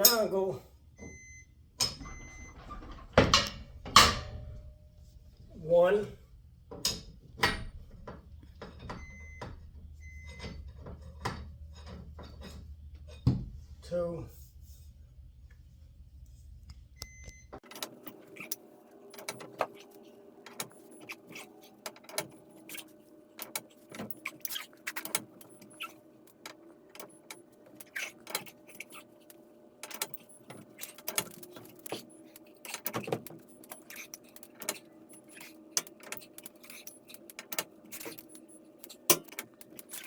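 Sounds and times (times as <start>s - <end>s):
steel bars clinking on metal: 0.0s - 0.3s.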